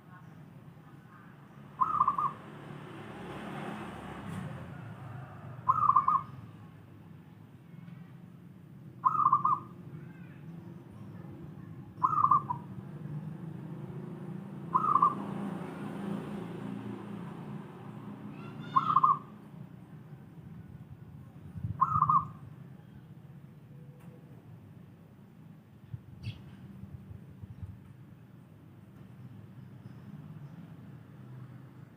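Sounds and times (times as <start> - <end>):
dove cooing: 1.8 - 2.4, 5.6 - 6.3, 9.0 - 9.6, 12.0 - 12.6, 14.7 - 15.2, 21.8 - 22.3.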